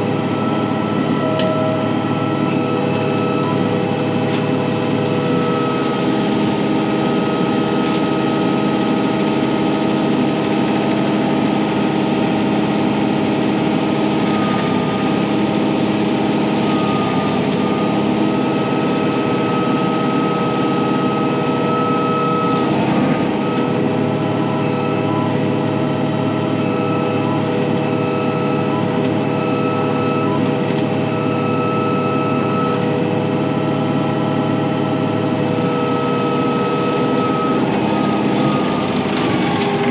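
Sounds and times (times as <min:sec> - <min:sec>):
steady high whine: 0:00.0 - 0:10.4
tractor diesel engine running: 0:00.0 - 0:39.9.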